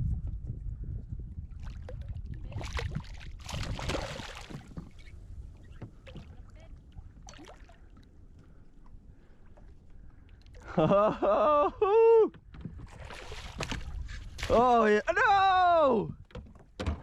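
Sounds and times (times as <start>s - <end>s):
wind rumble on microphone: 0.0s - 7.4s, 11.7s - 17.0s
water splashing and sloshing: 1.5s - 15.2s.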